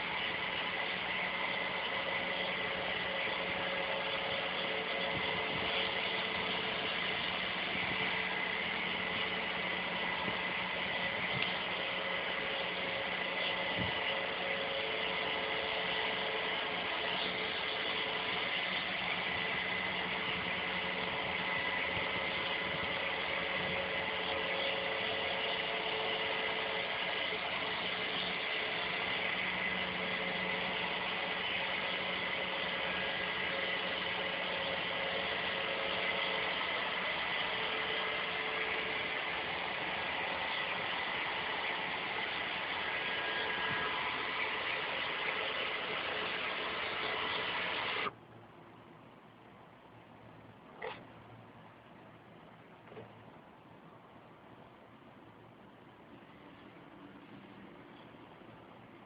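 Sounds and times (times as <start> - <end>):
vacuum cleaner motor whirring: 0.0 - 48.2.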